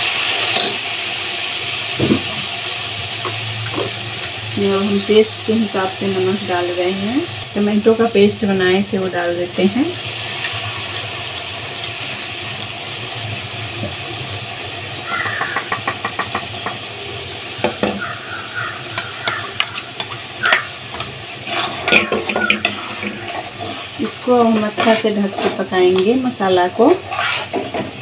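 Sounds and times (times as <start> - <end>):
paste sizzling in hot oil: 0.0 - 28.0
spatula scraping metal pan: 20.9 - 25.7, 26.9 - 28.0.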